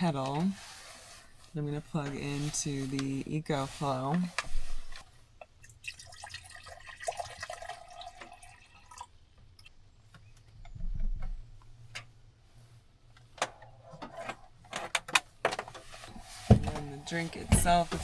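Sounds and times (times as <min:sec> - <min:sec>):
faint water sound: 0:05.5 - 0:09.8.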